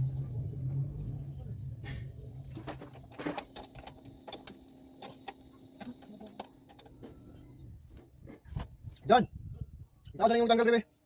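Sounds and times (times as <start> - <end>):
tools and metal parts clicking: 2.6 - 7.4.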